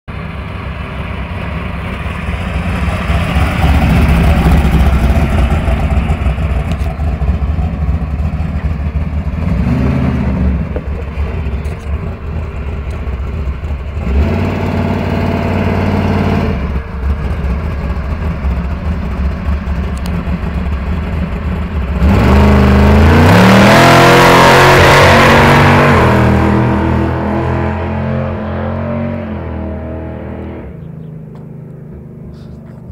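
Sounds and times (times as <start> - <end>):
loud car engine revving: 1.4 - 32.9.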